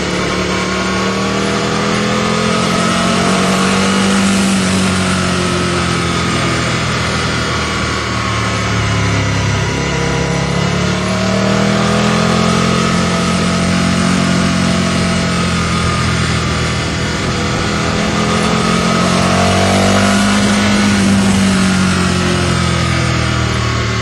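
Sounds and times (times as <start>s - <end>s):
motorcycle engine: 0.0s - 24.0s
wind rushing: 15.6s - 22.4s.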